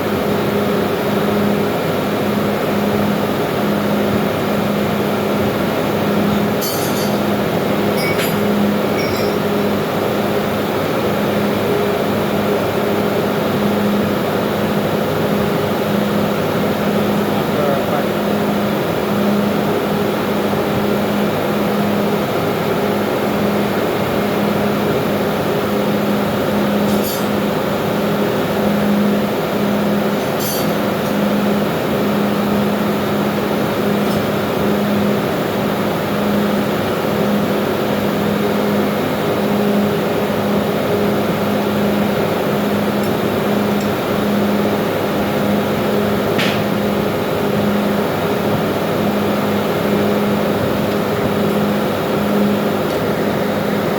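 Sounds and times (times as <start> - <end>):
ship engine room machinery: 0.0 - 53.9
wavering hum: 6.2 - 10.0.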